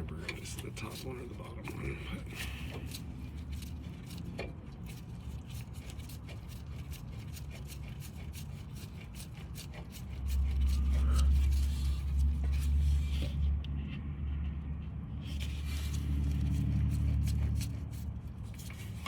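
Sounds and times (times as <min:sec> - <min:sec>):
steady low rumble: 0:10.1 - 0:19.0.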